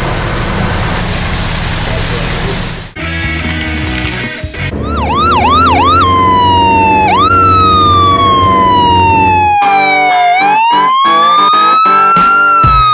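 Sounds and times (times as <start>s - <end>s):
emergency vehicle siren: 4.7s - 12.9s.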